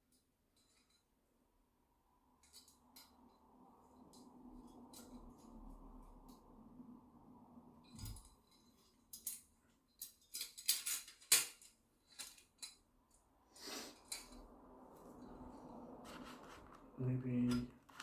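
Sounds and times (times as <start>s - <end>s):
clicks and clinks of items: 7.9s - 12.8s.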